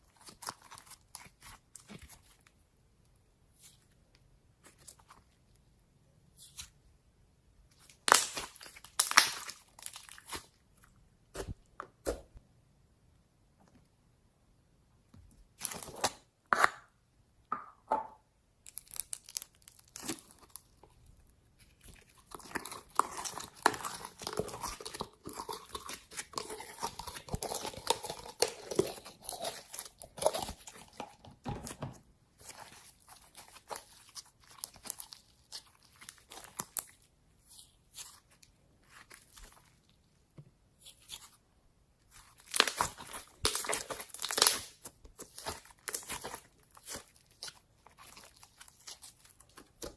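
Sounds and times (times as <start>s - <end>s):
slime crackling and popping: 7.9s - 10.5s, 18.6s - 21.0s, 21.6s - 31.1s, 32.4s - 39.6s, 42.1s - 49.9s.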